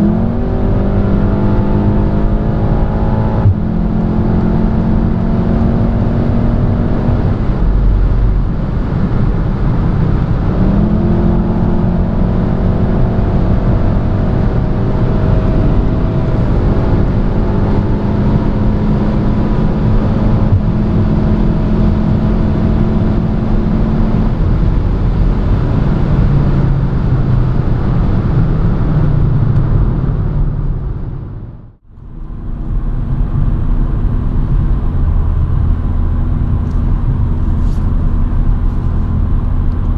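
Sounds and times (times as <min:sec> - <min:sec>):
car engine accelerating hard: 0:00.0 - 0:39.9
road noise: 0:00.0 - 0:39.9.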